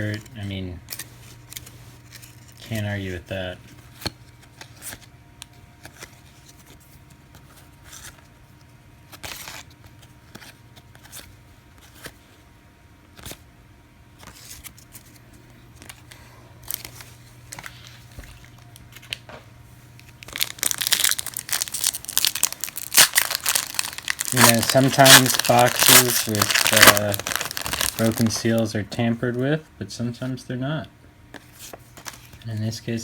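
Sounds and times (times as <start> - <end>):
trading cards being handled: 14.2 - 28.8, 31.3 - 32.8
foil wrapper crinkling torn open: 20.0 - 28.7.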